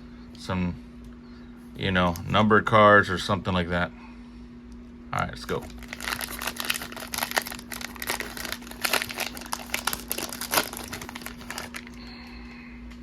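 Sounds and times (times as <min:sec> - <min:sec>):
wrapper crinkling: 0:05.5 - 0:12.0.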